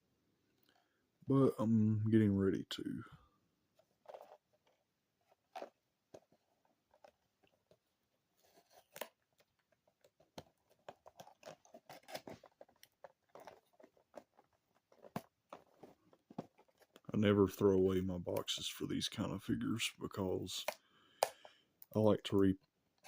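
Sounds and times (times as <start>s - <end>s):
cardboard box crinkling and clicking: 4.0s - 17.1s.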